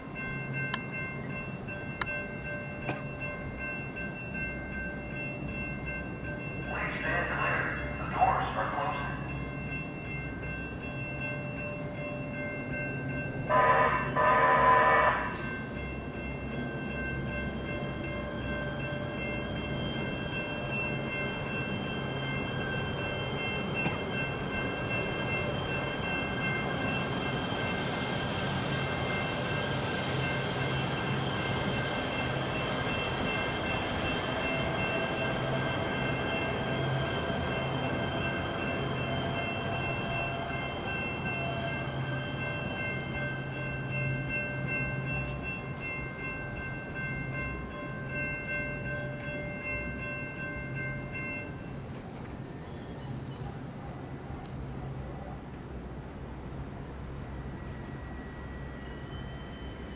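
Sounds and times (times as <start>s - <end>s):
passing train noise: 0.0s - 59.9s
railroad crossing warning bell: 0.0s - 59.9s
train horn blasts: 13.4s - 15.5s.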